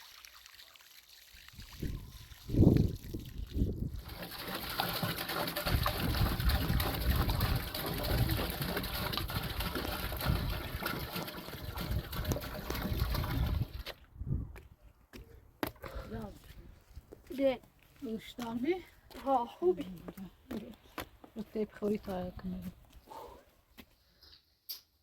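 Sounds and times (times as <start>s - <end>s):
running water rushing: 0.0s - 13.9s.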